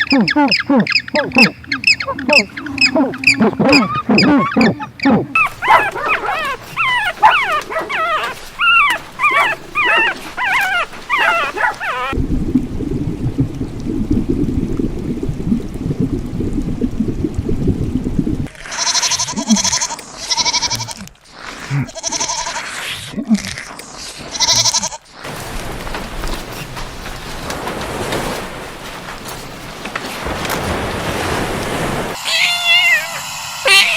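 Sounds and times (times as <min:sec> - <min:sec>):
animal high yelps: 0:00.0 - 0:12.2
loud drawn-out animal calls: 0:00.0 - 0:12.2
low rumbling noise: 0:12.1 - 0:18.5.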